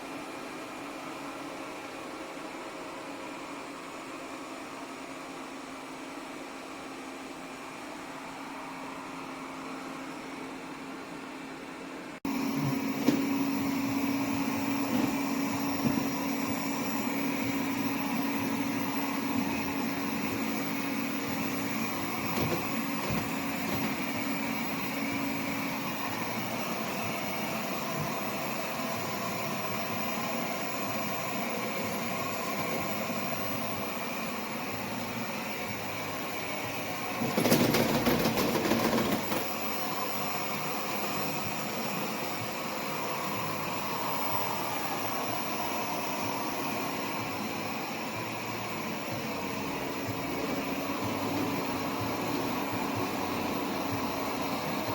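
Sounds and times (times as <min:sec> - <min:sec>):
robot vacuum humming: 0:12.2 - 0:54.9.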